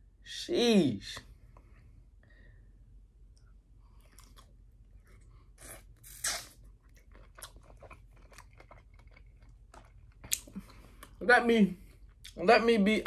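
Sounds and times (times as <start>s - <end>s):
wet chewing clicks and smacks: 3.3s - 11.2s.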